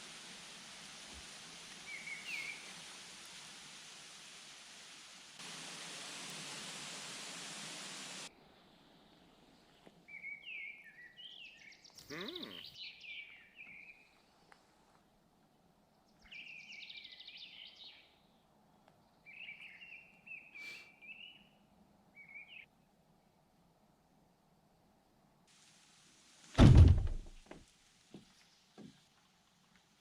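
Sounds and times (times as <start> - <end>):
faint outdoor background: 0.0 - 30.0
songbird singing chirped phrases: 1.8 - 2.8, 9.4 - 14.4, 15.8 - 23.4
brief knock: 26.6 - 27.4.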